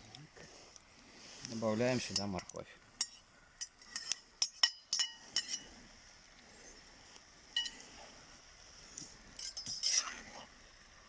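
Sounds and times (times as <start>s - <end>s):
utensil clinking against metal pot: 2.1s - 5.7s, 7.6s - 7.8s, 9.4s - 10.1s.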